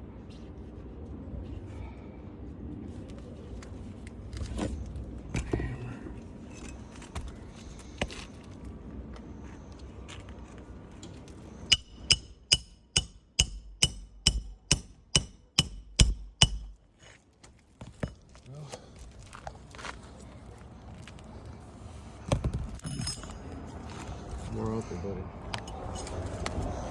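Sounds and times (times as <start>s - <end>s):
hammer driving nails: 11.7s - 16.8s.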